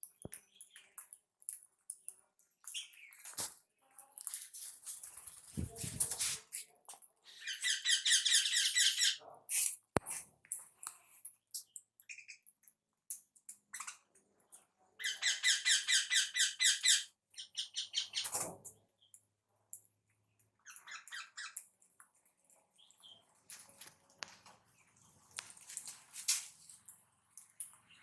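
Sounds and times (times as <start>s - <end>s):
pet birds chirping: 0.0s - 3.9s, 7.2s - 9.2s, 11.0s - 12.8s, 13.4s - 14.1s, 14.9s - 19.4s, 20.1s - 21.9s, 22.5s - 23.5s.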